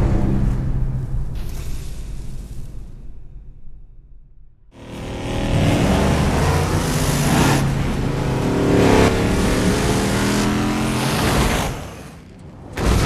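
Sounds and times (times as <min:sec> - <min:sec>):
large vehicle engine revving: 0:04.7 - 0:13.0.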